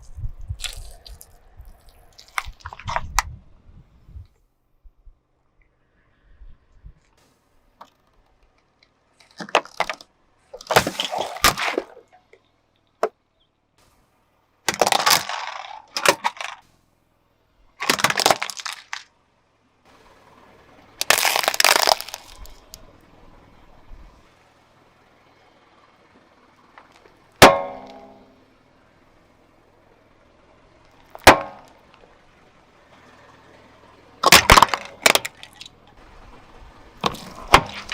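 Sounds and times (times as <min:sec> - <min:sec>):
brittle objects crunching under tyre: 0:00.0 - 0:03.3, 0:07.8 - 0:12.4, 0:14.7 - 0:16.7, 0:17.8 - 0:19.1, 0:21.0 - 0:22.9, 0:34.2 - 0:36.0, 0:37.0 - 0:37.9
sharp ringing impact: 0:27.4 - 0:28.5.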